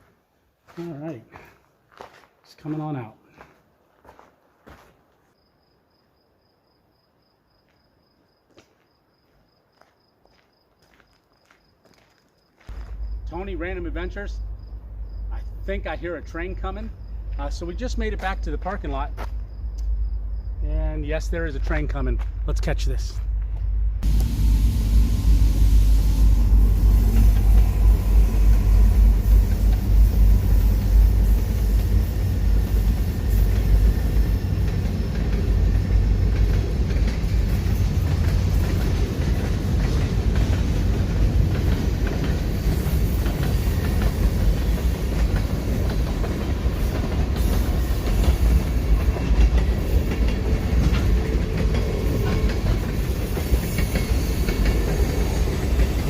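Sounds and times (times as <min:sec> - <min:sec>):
train passing: 0:12.7 - 0:56.0.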